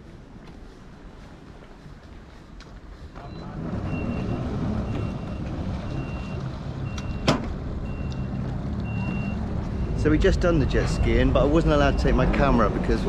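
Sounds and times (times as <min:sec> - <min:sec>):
reversing alarm beeping: 0:03.2 - 0:12.4.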